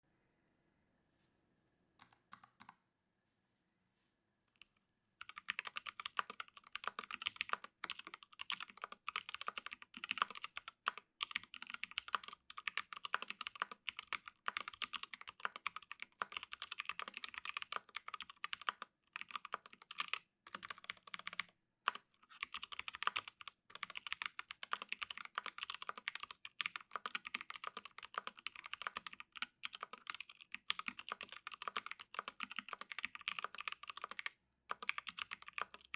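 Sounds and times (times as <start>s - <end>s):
mechanical keyboard typing: 2.0s - 2.8s, 5.2s - 35.9s.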